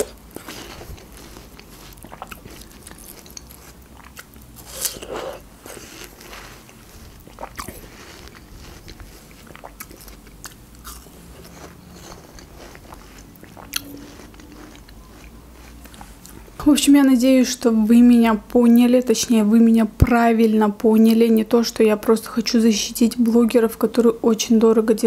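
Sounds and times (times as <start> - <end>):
person chewing watermelon: 0.0 - 16.5.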